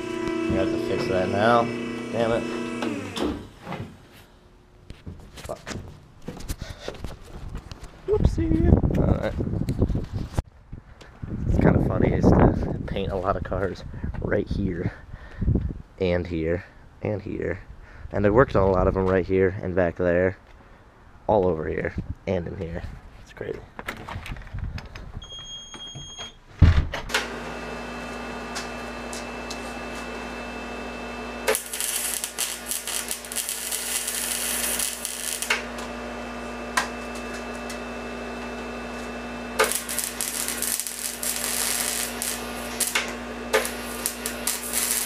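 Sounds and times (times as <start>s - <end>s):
welder humming: 0.0s - 3.8s, 27.2s - 45.0s
crackling welding arc: 31.4s - 35.9s, 38.9s - 45.0s.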